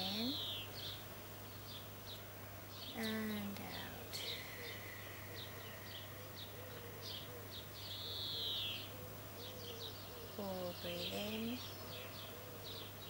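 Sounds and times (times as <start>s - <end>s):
birds chirping and whistling: 0.0s - 2.2s, 3.7s - 13.0s
steady low hum: 0.0s - 8.1s.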